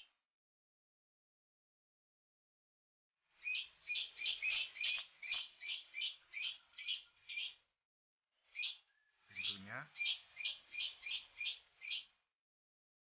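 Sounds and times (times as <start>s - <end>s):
small bird chirping rapidly: 3.4s - 7.7s, 8.5s - 12.2s.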